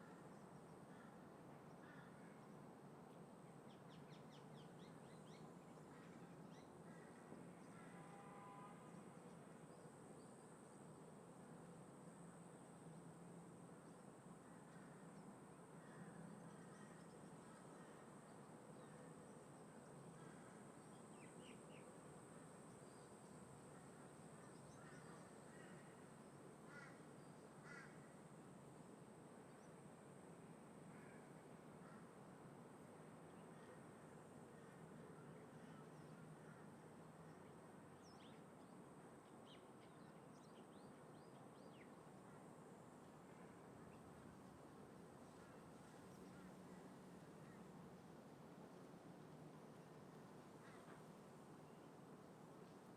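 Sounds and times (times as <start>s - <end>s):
faint wind: 0.0s - 52.9s
distant crow cawing: 26.7s - 27.0s, 27.6s - 28.1s.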